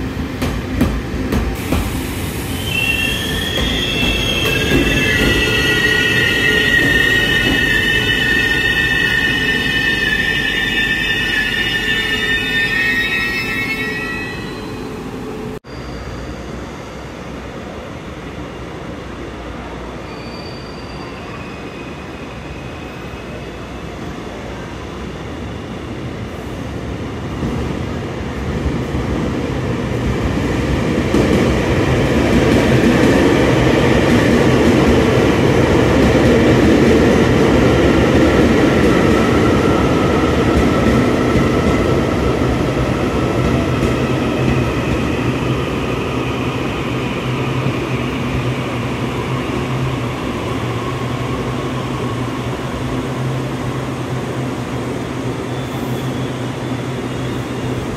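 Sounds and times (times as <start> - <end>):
train rumbling on rails: 0.0 - 57.9
high whining and squealing: 2.4 - 15.4.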